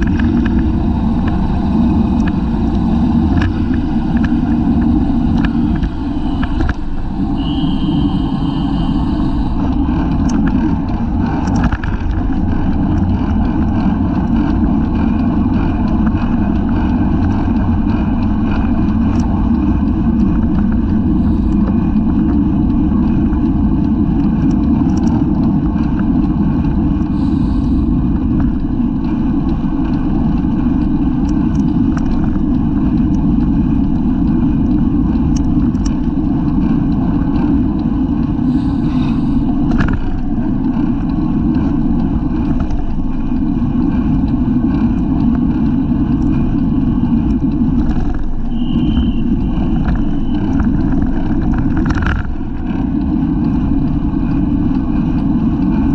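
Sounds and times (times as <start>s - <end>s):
road noise: 0.0s - 55.9s
wind rush: 0.0s - 55.9s
high-pitched squeal: 5.9s - 9.6s.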